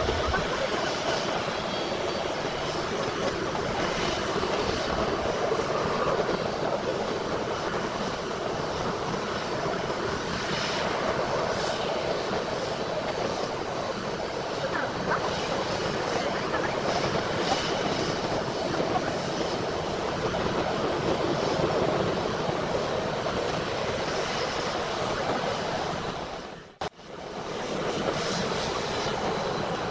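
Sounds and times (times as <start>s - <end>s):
jet engine rushing: 0.0s - 29.9s.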